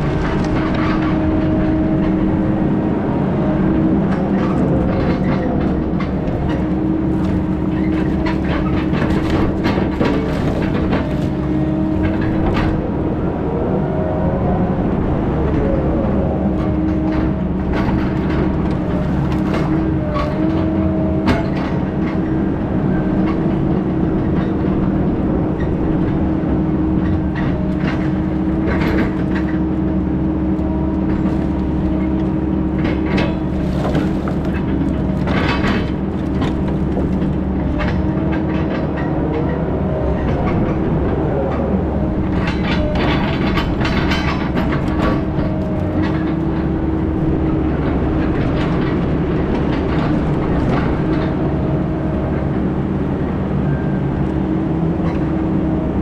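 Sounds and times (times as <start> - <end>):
heavy diesel engine running: 0.0 - 56.0
rattles and knocks: 4.1 - 12.9, 25.6 - 39.6, 42.3 - 52.6.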